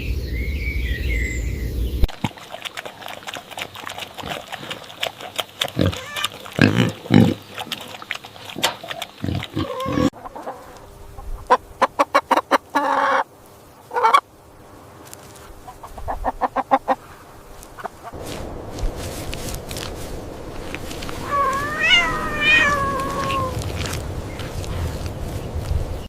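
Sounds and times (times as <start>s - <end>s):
pig grunting: 2.2s - 10.2s
hen clucking: 2.2s - 14.3s, 15.5s - 18.2s, 21.2s - 24.5s.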